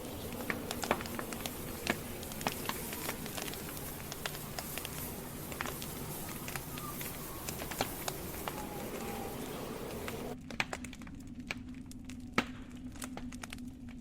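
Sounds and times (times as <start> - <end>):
hiss of flames: 0.0 - 10.9
campfire logs crackling and popping: 0.0 - 14.0.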